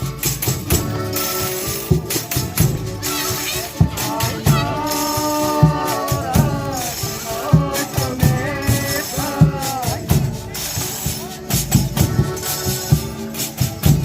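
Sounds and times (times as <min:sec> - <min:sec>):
low drum beats: 0:00.0 - 0:14.0
sliding melody line: 0:00.1 - 0:14.0.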